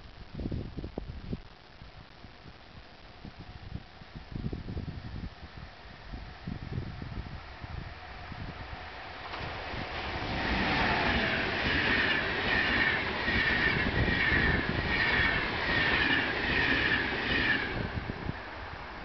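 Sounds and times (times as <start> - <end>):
locomotive passing: 7.9 - 19.0
train coaches rushing past: 8.8 - 18.6.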